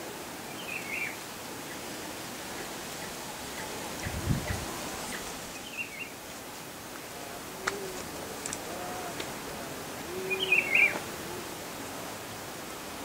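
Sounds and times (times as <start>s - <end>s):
birds calling: 0.0s - 11.8s
steady outdoor hiss: 0.0s - 13.0s
faint clicks: 7.6s - 9.4s.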